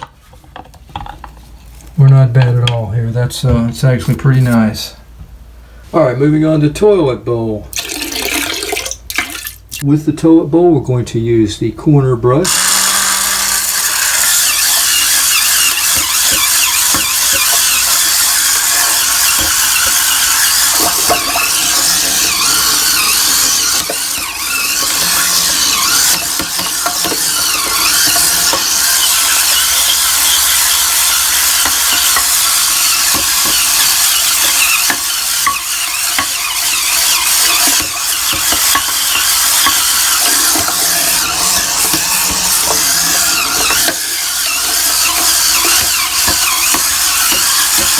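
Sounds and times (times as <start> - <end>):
spinning scrub brush on porcelain: 12.4 - 47.9.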